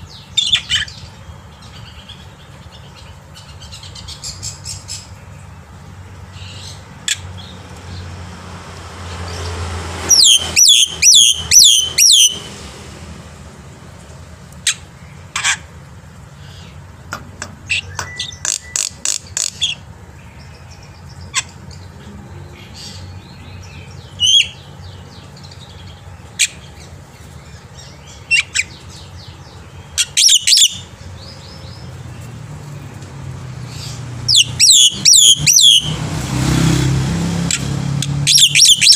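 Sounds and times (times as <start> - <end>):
bird singing shrill notes: 10.0 - 12.5, 22.5 - 26.6, 27.4 - 32.4, 33.7 - 36.0, 38.2 - 38.9
single bird calls: 10.1 - 12.4, 33.8 - 35.9, 38.3 - 38.9.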